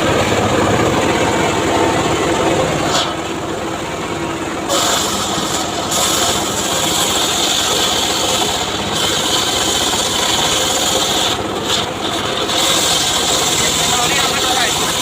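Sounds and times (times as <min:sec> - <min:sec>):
circular saw cutting wood: 0:04.6 - 0:15.0.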